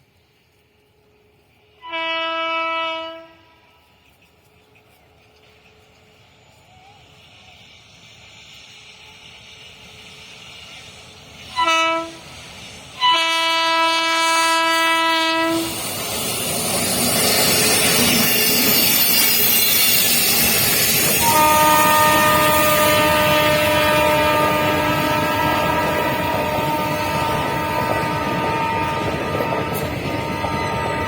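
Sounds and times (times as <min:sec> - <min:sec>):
train passing at speed: 0:00.0 - 0:31.0
locomotive horn blasts: 0:01.8 - 0:03.8, 0:11.5 - 0:12.2, 0:13.0 - 0:15.7, 0:21.1 - 0:31.0.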